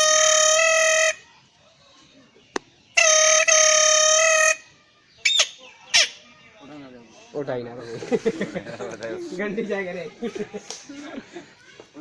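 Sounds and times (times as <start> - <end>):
boy imitating air horn: 0.0 - 1.2.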